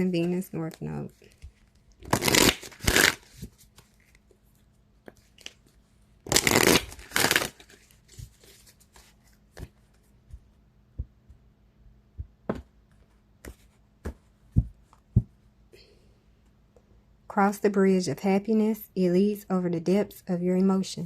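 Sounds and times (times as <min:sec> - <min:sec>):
cards being shuffled: 0:00.2 - 0:10.4.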